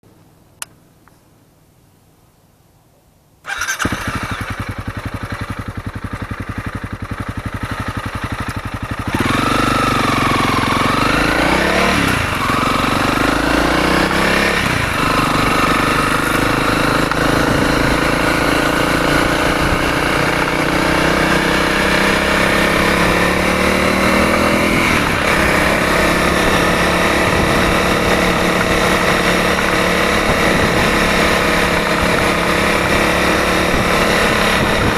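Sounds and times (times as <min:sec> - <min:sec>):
motorcycle engine idling and revving: 0:03.5 - 0:34.9.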